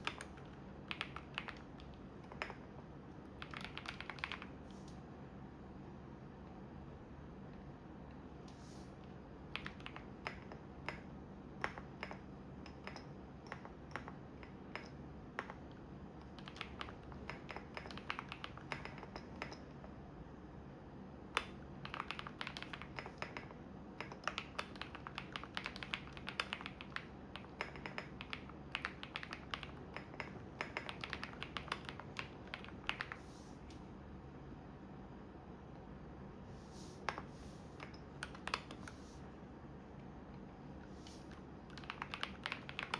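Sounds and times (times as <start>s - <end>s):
computer keyboard typing: 0.0s - 2.6s, 3.3s - 4.7s, 9.5s - 19.7s, 21.3s - 33.4s, 37.8s - 39.0s, 41.0s - 42.9s.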